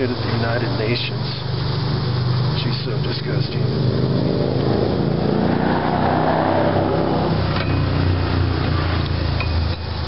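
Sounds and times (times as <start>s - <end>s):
vehicle engine revving: 3.5s - 9.4s.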